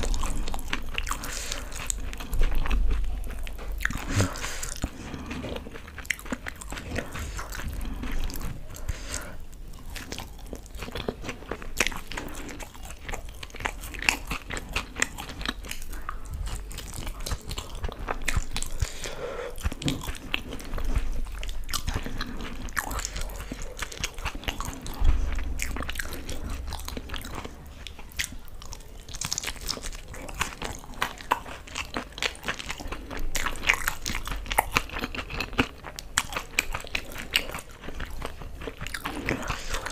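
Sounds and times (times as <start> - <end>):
crunchy chewing and mouth clicks: 0.0 - 39.9.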